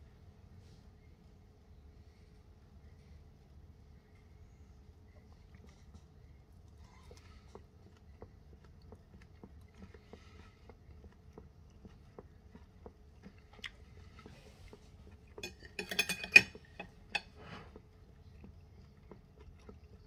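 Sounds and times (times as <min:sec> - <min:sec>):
man chewing: 0:05.4 - 0:15.9, 0:16.5 - 0:20.0.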